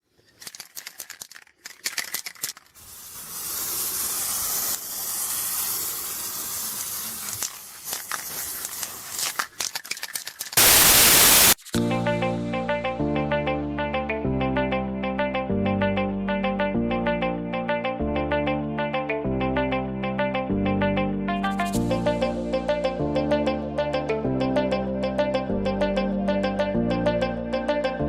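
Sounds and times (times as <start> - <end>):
steady hiss: 2.8 - 9.4, 10.6 - 11.6
burst of static noise: 10.6 - 11.6.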